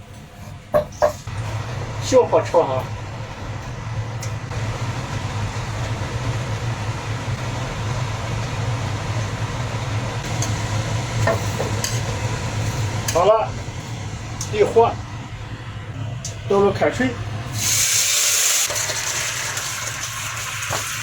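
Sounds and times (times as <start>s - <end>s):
steady low hum: 0.0s - 18.3s
sugar sizzling in a wok: 17.6s - 21.0s.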